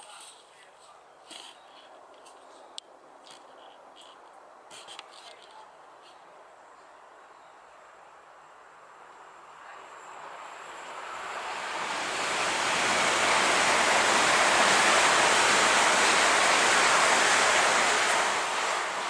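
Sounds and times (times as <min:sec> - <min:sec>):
train passing: 0:07.8 - 0:19.0.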